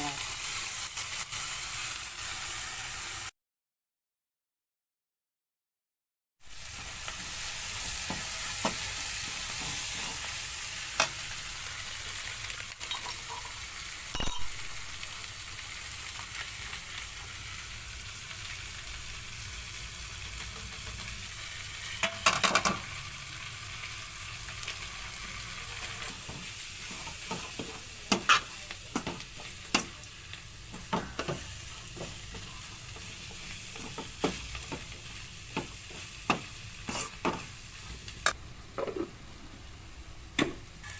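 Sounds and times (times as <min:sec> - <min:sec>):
peppers sizzling in oil: 0:00.0 - 0:03.3, 0:06.4 - 0:40.9
stirring knocks and scrapes on pan: 0:07.8 - 0:10.3, 0:26.0 - 0:30.0, 0:30.7 - 0:37.5.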